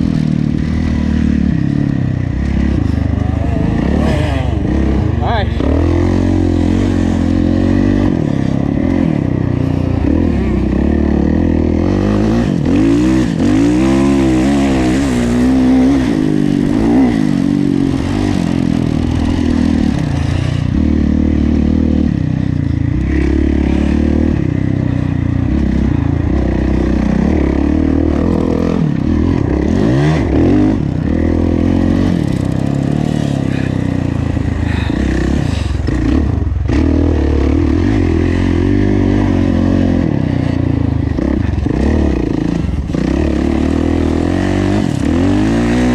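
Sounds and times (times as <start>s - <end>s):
dirt bike engine racing: 0.0s - 45.9s.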